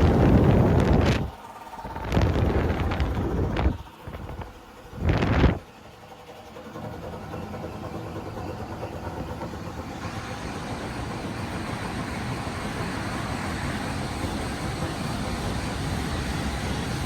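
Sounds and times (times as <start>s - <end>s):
car wash blower dryers rushing: 0.0s - 17.0s
high hiss: 9.9s - 17.0s.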